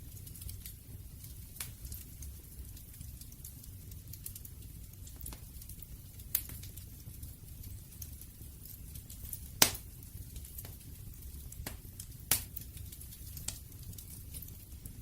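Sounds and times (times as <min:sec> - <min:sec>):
fire crackling and popping: 0:00.0 - 0:15.0
wood fire rumbling: 0:00.0 - 0:15.0.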